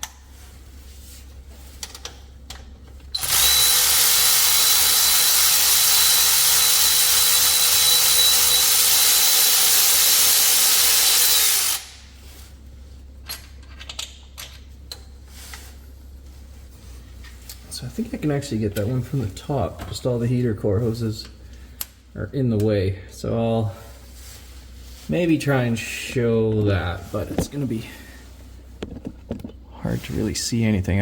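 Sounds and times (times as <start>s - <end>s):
power tool whirring: 3.1s - 12.0s.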